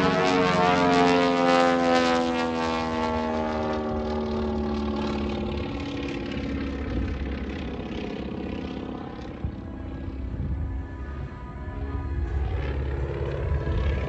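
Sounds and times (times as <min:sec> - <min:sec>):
propeller airplane passing overhead: 0:00.0 - 0:14.0
low rumble: 0:03.8 - 0:14.0.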